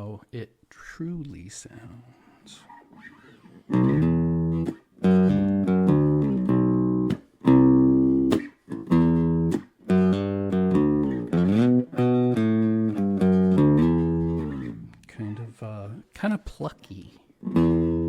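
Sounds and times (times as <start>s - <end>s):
picked electric bass notes: 3.7s - 15.9s, 17.4s - 18.0s.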